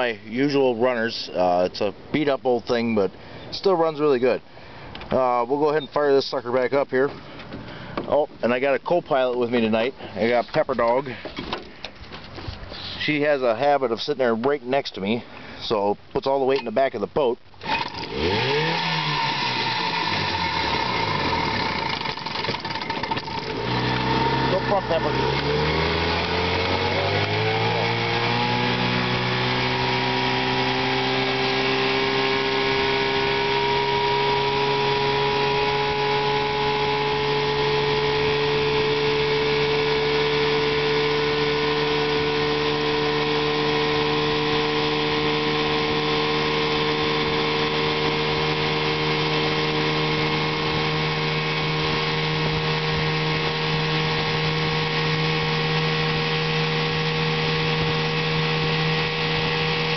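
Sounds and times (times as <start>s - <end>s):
outboard motor running: 17.6s - 59.9s.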